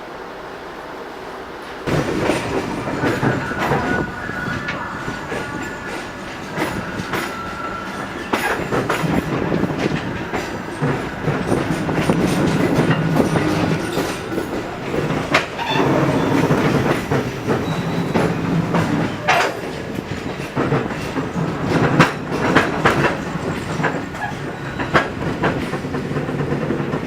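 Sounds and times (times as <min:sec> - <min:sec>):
train rumbling on rails: 0:00.0 - 0:27.0
wheels clacking over track: 0:01.9 - 0:27.0
wheel squeal: 0:13.9 - 0:20.4.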